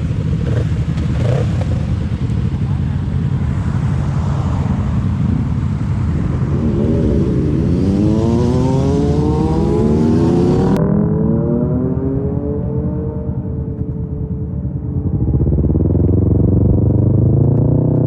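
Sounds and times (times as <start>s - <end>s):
motorcycle engine accelerating: 0.0s - 18.0s
wind rushing past: 4.0s - 13.5s.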